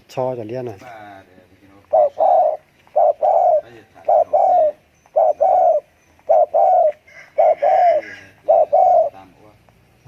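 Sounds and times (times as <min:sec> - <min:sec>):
dove cooing: 0:01.8 - 0:09.4.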